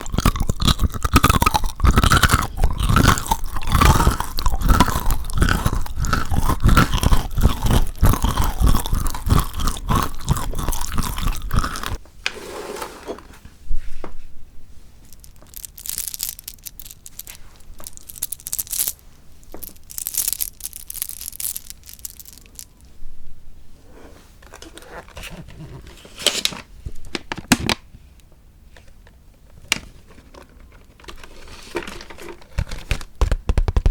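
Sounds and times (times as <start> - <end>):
chewing and crunching chocolate: 0.0 - 12.0, 15.1 - 22.9
mouth clicks: 0.0 - 12.0.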